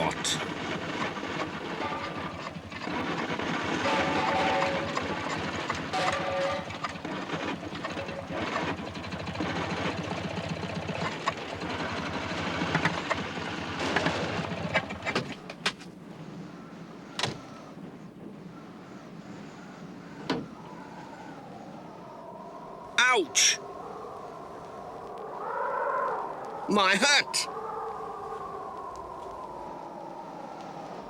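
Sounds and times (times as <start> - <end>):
small van engine chugging: 0.0 - 20.7.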